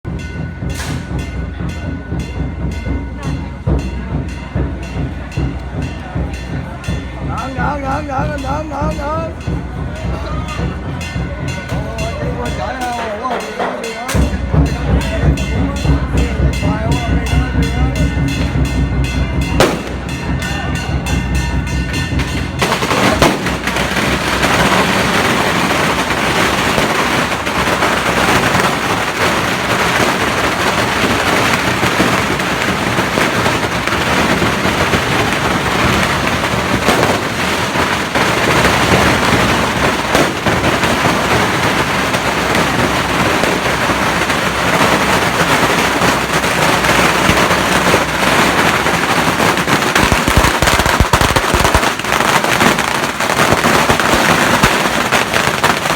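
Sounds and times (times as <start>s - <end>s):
firecrackers crackling: 0.1s - 55.9s.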